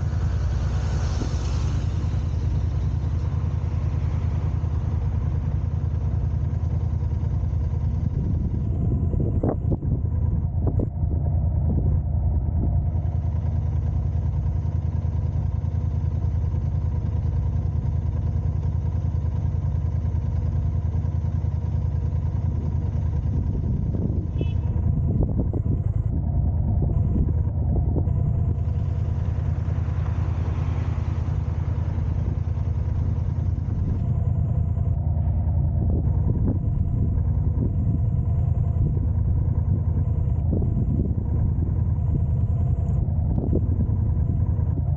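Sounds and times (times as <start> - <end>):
hiss: 0.0 - 3.4
car road and engine rumble: 0.0 - 44.9
constant hum: 0.0 - 44.9.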